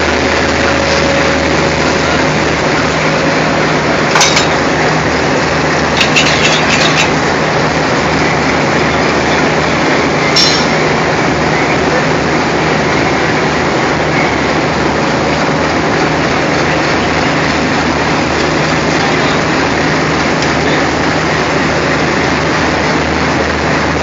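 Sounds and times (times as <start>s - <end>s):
diesel locomotive engine running: 0.0s - 24.0s
metallic clanks: 4.1s - 4.7s, 5.9s - 7.2s, 10.3s - 10.9s
quick metallic clinks: 10.4s - 10.8s.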